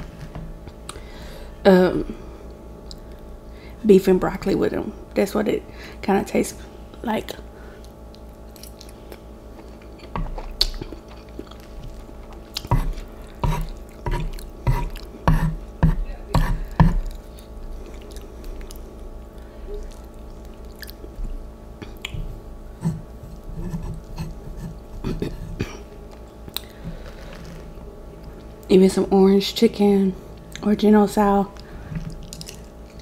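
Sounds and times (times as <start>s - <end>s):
person chewing noodles: 7.8s - 15.8s, 16.4s - 28.5s, 31.6s - 33.0s.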